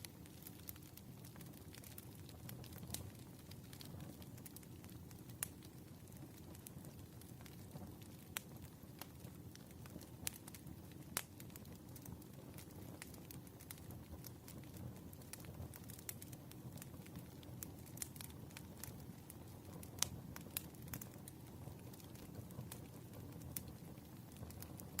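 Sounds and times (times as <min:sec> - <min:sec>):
fire crackles and pops: 0:00.0 - 0:25.0
wood fire burning: 0:00.0 - 0:25.0.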